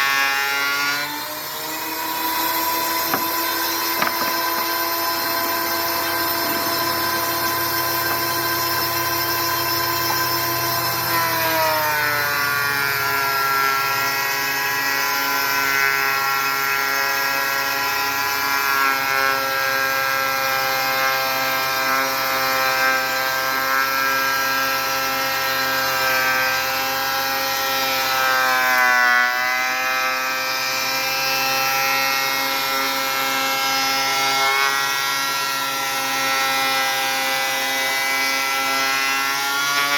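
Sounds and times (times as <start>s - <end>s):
thickness planer motor whine: 0.0s - 39.9s.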